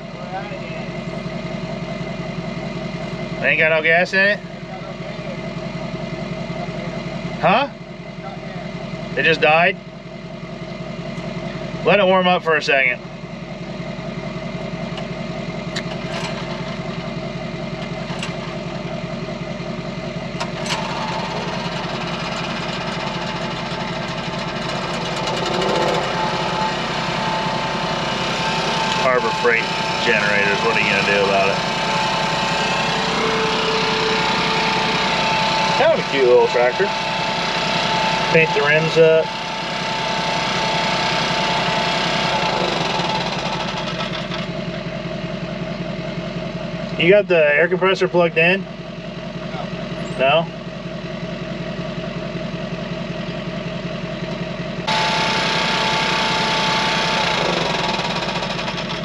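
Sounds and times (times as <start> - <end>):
steady whine: 0.0 - 59.0
tractor engine idling: 0.0 - 59.0
thin steady whine: 16.9 - 43.1.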